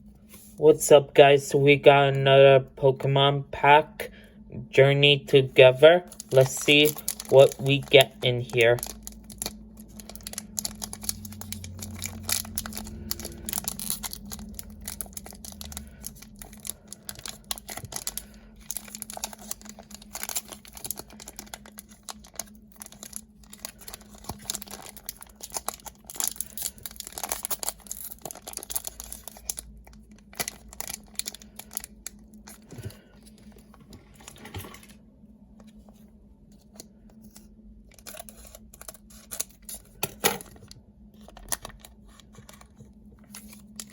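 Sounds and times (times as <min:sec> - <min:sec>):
foil wrapper tearing and crinkling: 0:06.1 - 0:33.1, 0:37.9 - 0:40.0, 0:41.2 - 0:43.9.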